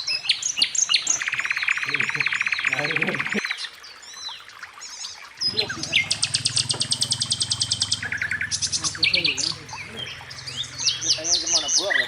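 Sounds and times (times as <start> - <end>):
songbirds singing: 0.0 - 12.0
low pulsing motor hum: 5.4 - 11.7.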